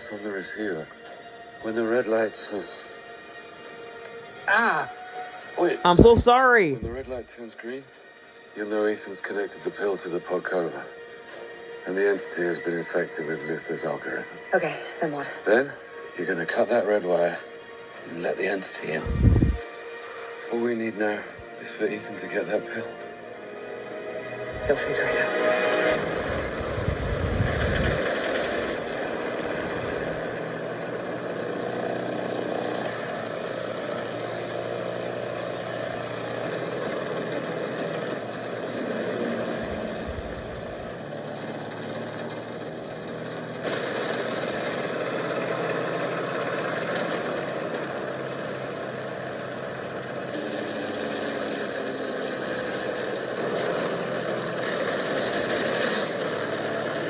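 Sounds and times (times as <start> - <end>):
rushing noise: 19.0 - 19.6, 38.9 - 41.3
propeller plane engine: 23.9 - 57.0.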